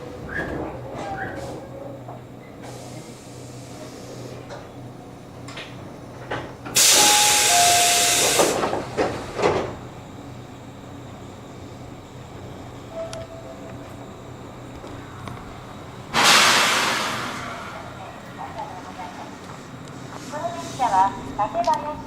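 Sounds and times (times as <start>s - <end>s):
train clunks: 0.0s - 10.2s, 12.8s - 20.1s
train low hum: 0.0s - 22.0s
compressed air hiss: 6.8s - 8.6s, 16.2s - 17.5s.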